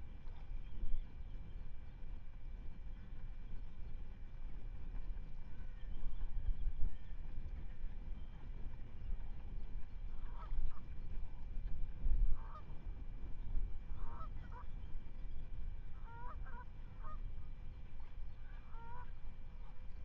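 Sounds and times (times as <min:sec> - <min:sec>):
steady low rumble: 0:00.0 - 0:20.0
geese honking: 0:14.0 - 0:14.6, 0:16.0 - 0:17.2, 0:18.6 - 0:19.1.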